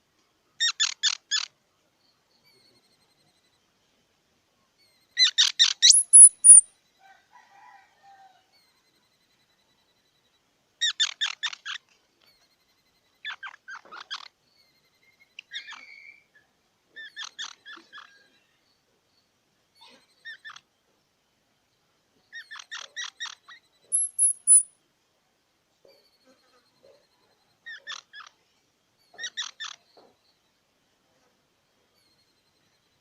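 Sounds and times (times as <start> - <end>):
squirrel chipping calls: 0.6 - 1.6, 5.2 - 6.7, 22.3 - 24.7, 27.6 - 28.4, 29.0 - 30.0
squirrel high squeal: 5.2 - 6.7, 22.4 - 24.7.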